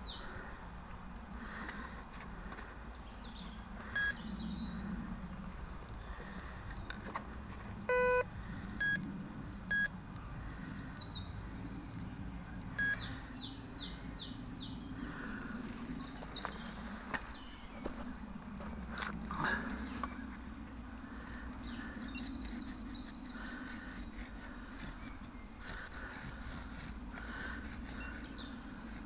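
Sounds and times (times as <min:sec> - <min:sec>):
birds chirping: 0:00.0 - 0:00.6, 0:07.9 - 0:29.0
metal detector beeping: 0:04.0 - 0:04.2, 0:07.9 - 0:09.0, 0:09.7 - 0:09.9, 0:12.8 - 0:13.0.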